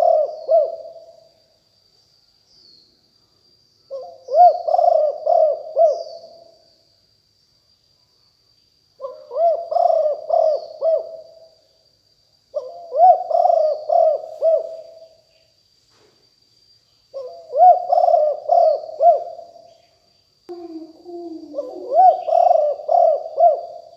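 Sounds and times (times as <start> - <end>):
dove cooing: 0.0 - 1.1, 3.9 - 6.4, 9.0 - 11.4, 12.5 - 15.1, 17.2 - 19.4, 20.5 - 23.9
faint high-pitched whine: 0.0 - 23.9.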